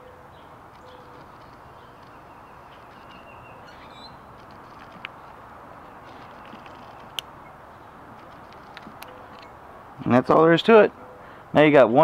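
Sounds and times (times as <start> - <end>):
faint bird chirps: 0.0 - 5.0
outdoor background hiss: 0.0 - 12.0.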